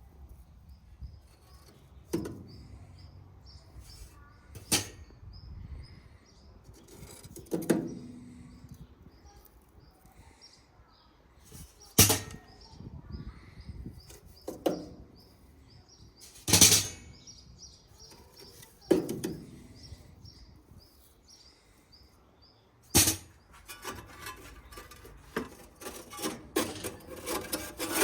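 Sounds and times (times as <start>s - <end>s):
cooking gear clattering: 22.9s - 28.0s
rustling: 22.9s - 28.0s.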